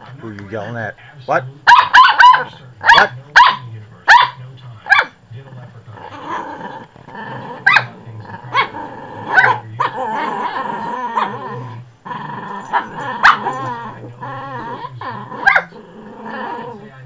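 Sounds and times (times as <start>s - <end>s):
puppies yapping barks: 1.7s - 5.2s, 7.6s - 10.4s, 12.6s - 13.9s, 15.4s - 15.8s
puppies growling: 4.4s - 17.0s.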